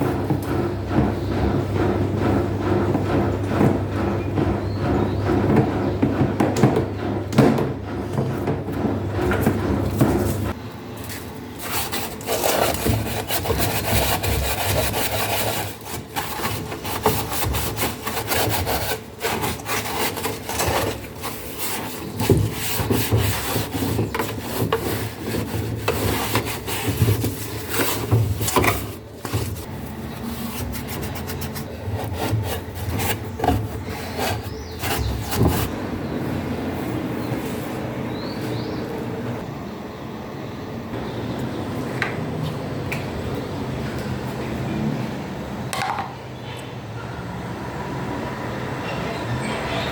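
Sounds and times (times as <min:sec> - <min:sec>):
rubbing and scraping by hand: 0:00.0 - 0:35.8.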